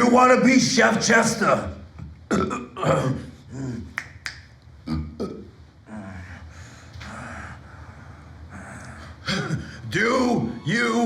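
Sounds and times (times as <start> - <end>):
person making wordless vocal sounds: 2.3 - 4.3.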